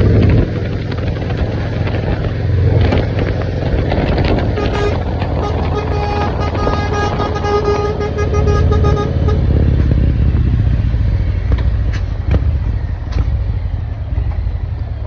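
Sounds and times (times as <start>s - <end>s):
truck diesel exhaust rumble: 0.0s - 15.0s.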